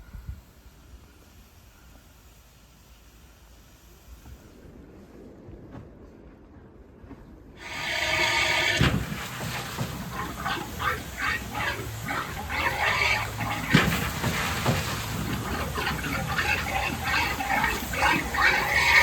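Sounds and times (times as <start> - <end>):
steam locomotive puffing: 7.6 - 19.0.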